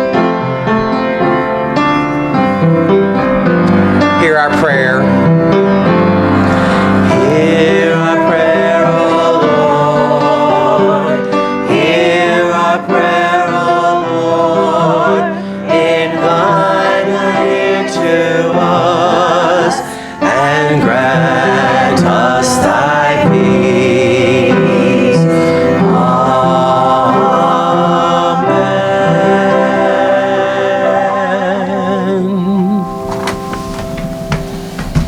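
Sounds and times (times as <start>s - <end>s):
piano accompaniment: 0.0s - 35.0s
person singing with vibrato: 6.1s - 33.8s.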